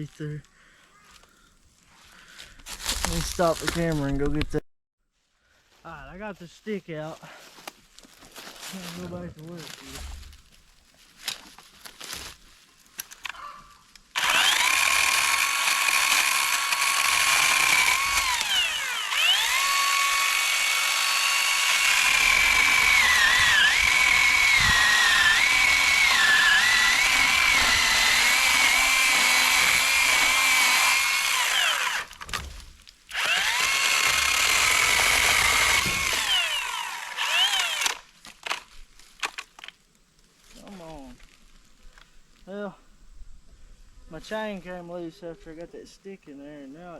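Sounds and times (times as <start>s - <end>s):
electric chainsaw motor whine: 14.2s - 32.4s, 33.1s - 38.0s.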